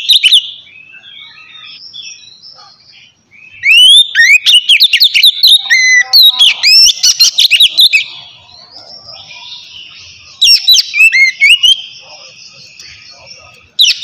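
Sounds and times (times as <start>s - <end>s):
bird singing whistled notes: 0.0s - 14.0s
faint birdsong: 0.0s - 14.0s.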